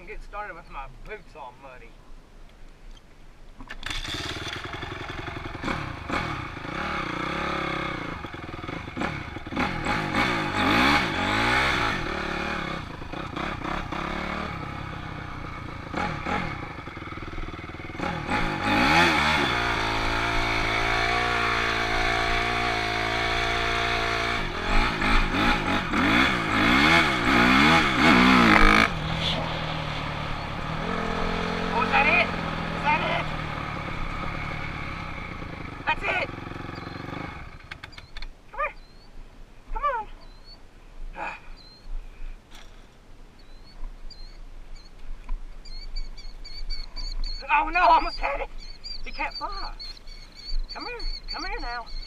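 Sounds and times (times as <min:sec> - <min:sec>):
dirt bike engine starting: 0:03.6 - 0:38.2
dirt bike engine revving: 0:03.7 - 0:39.1, 0:45.6 - 0:52.0.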